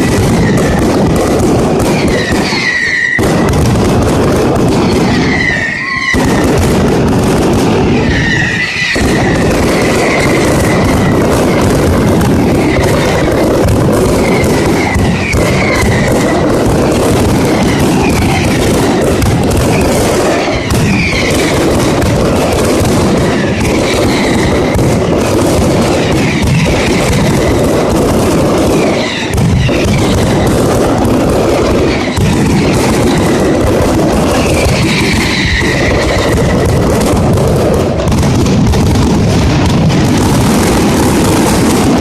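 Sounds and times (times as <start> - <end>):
firecrackers banging: 0.0 - 42.0
falling whistles: 1.9 - 3.2, 5.0 - 6.4, 8.0 - 11.2, 14.2 - 16.4, 20.3 - 21.5, 34.4 - 36.6.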